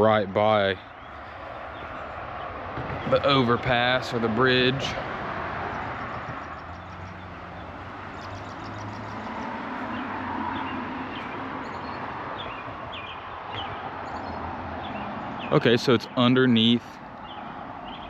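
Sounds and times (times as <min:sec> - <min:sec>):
road traffic on overpass: 0:00.0 - 0:18.0
bird chirps: 0:05.8 - 0:15.6.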